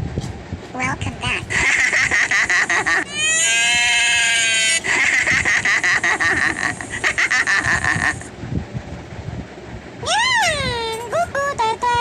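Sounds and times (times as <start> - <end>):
animal chattering: 0.8 - 8.3.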